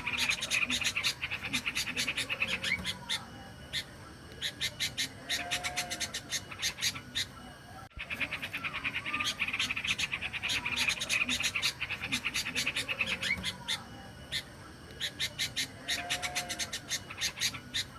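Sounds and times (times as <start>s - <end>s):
bird chirping rapidly: 8.0s - 17.9s.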